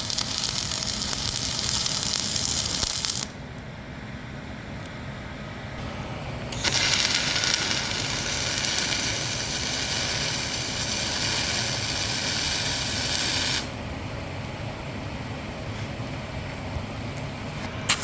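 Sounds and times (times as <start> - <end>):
arc welding crackling sizzle: 0.0 - 3.4, 6.4 - 13.8.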